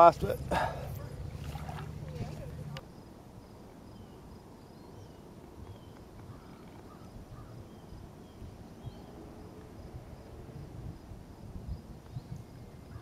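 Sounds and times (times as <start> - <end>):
low steady rumble: 0.0 - 3.1.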